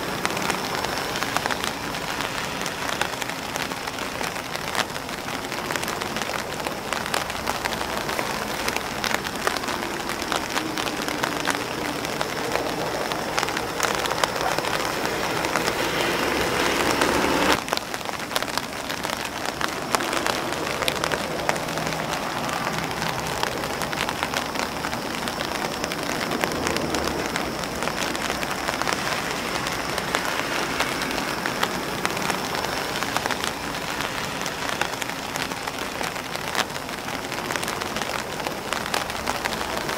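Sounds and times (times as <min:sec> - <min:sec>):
loud rushing noise: 0:00.0 - 0:17.8
rain pattering on umbrella: 0:00.0 - 0:39.9.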